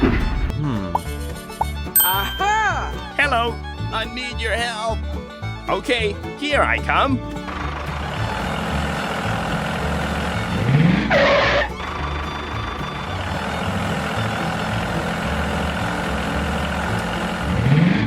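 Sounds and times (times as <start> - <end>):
background music: 0.0 - 18.0
engine running: 6.7 - 18.0.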